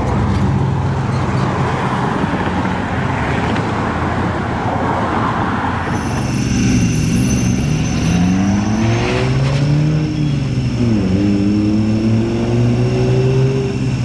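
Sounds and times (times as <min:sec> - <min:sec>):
large vehicle driving past: 0:00.0 - 0:12.1
thin high tones: 0:05.9 - 0:10.9.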